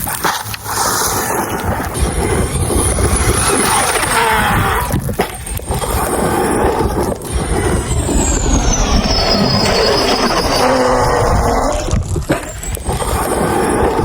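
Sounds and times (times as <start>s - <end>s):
electric motor whine: 1.4s - 14.0s
loud rushing noise: 5.8s - 12.6s.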